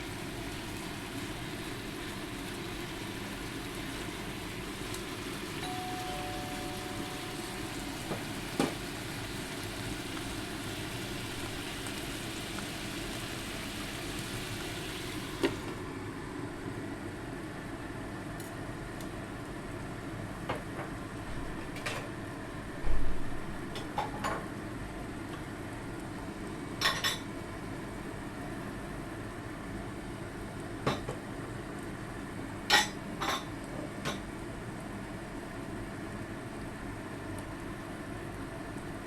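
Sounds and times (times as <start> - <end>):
cookware and utensils clinking: 32.7 - 34.2.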